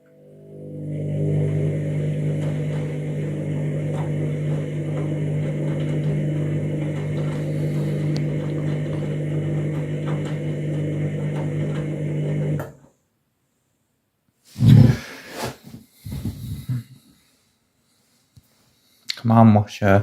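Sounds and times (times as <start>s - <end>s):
washing machine humming: 0.0s - 12.8s.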